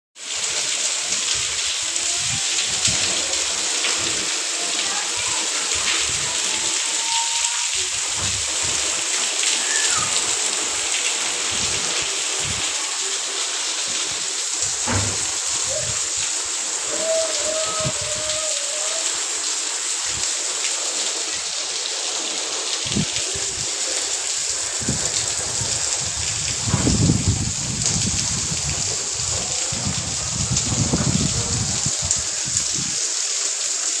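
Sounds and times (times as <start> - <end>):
heavy rain falling: 0.2 - 34.0.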